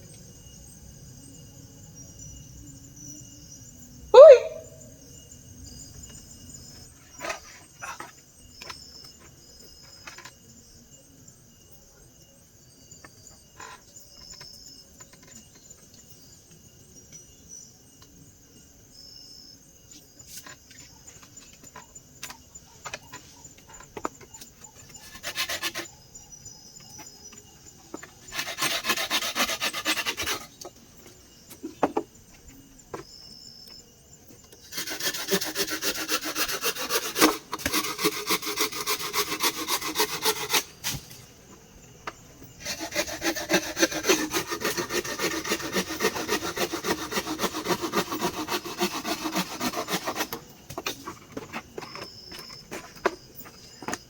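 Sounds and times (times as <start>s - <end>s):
high chirps: 4.2s - 4.9s
wood scraping: 27.9s - 30.7s, 34.7s - 41.3s, 42.6s - 54.0s.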